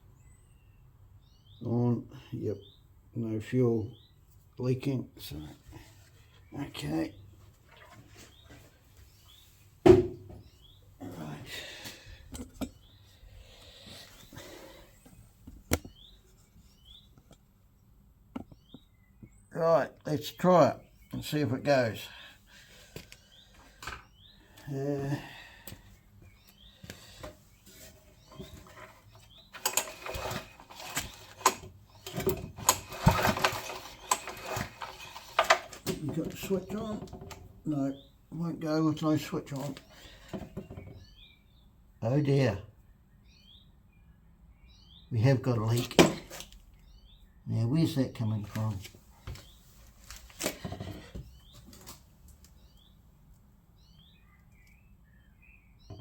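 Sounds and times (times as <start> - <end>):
small birds chirping: 0.0 - 56.0
handling knocks and clicks: 26.9 - 37.5
engine recoil starter pulls: 29.6 - 36.0.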